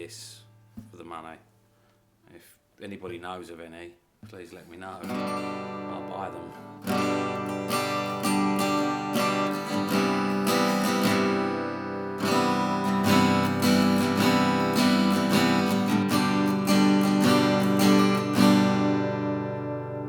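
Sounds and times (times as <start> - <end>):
acoustic guitar strummed: 5.0 - 20.0.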